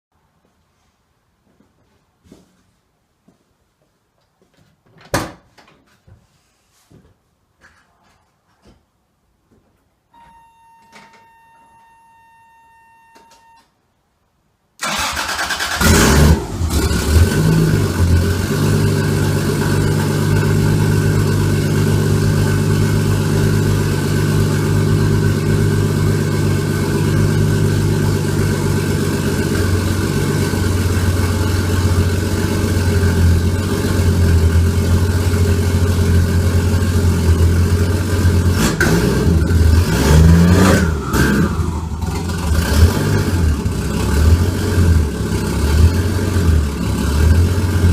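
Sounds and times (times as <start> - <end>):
car engine starting and idling: 14.8 - 47.9.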